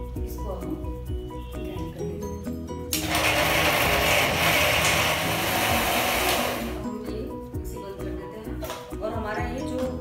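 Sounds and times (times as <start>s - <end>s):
mixer grinder running: 2.9s - 6.9s.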